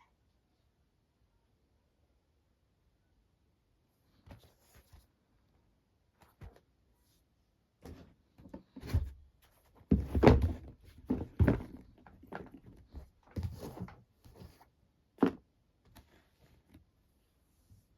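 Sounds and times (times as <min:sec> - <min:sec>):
thumps and knocks on shoe box: 0:09.8 - 0:14.0.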